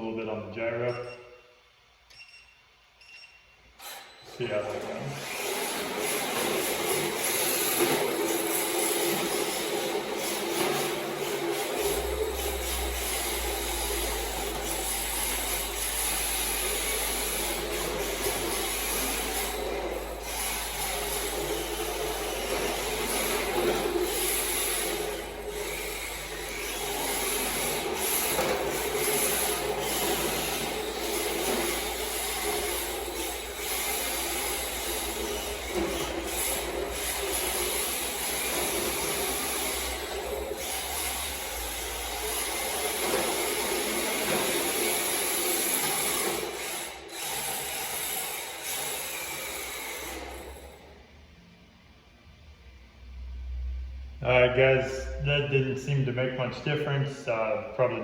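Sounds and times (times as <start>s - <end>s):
electric motor whine: 5.0s - 51.0s
rc car tires scrubbing on floor: 5.2s - 50.6s.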